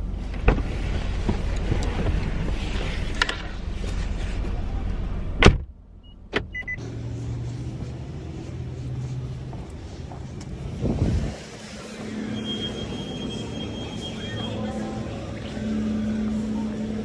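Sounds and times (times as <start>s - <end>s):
car rumble and road noise: 0.0s - 17.0s
low steady hum: 0.0s - 17.0s
car door shutting thump: 5.4s - 5.7s
short high electronic beeps: 12.0s - 16.0s.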